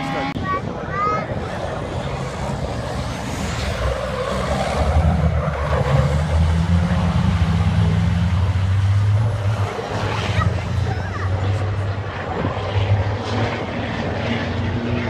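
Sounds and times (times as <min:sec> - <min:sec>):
racing engine running: 0:01.3 - 0:15.0.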